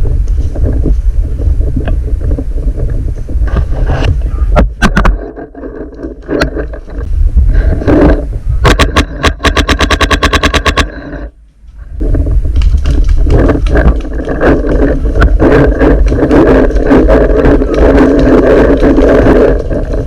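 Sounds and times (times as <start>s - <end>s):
loud rumble: 0.0s - 20.0s
scattered knocks: 4.6s - 7.1s, 8.1s - 11.3s
paintball marker firing rapidly: 8.7s - 10.9s.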